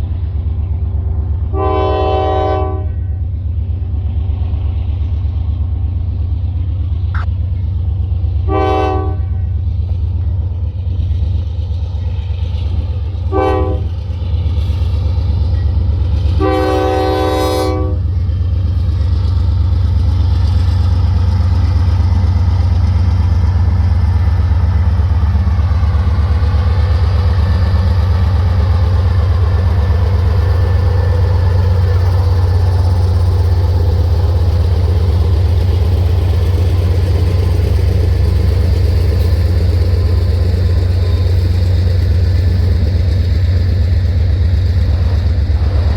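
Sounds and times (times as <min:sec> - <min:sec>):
train rumbling past: 0:00.0 - 0:45.9
train horn blasts: 0:01.5 - 0:03.2, 0:08.4 - 0:09.6, 0:13.3 - 0:13.9, 0:16.4 - 0:18.1.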